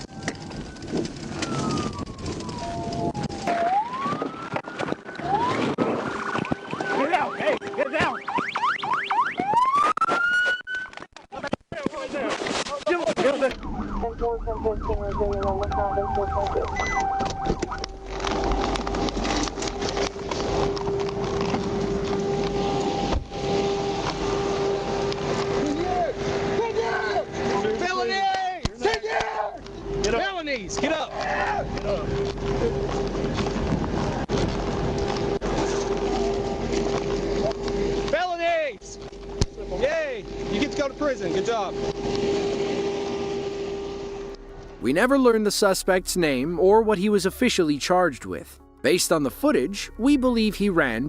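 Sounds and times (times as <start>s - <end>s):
police siren wailing: 0.0s - 11.0s, 13.2s - 27.8s
loud crackling and rustling: 0.0s - 44.7s
road and engine noise: 13.4s - 51.0s.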